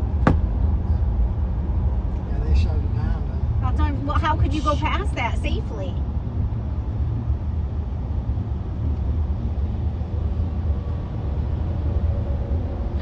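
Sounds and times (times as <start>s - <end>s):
car cabin rumble: 0.0s - 6.0s.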